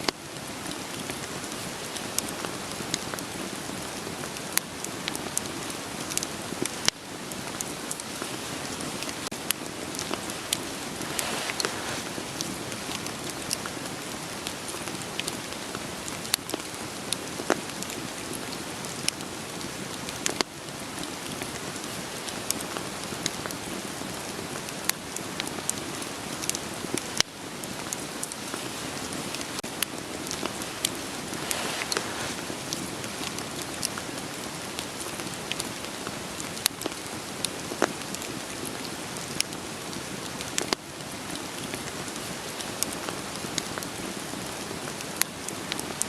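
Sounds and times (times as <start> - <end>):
steady rain: 0.0 - 46.0
wood fire crackling and popping: 0.5 - 46.0.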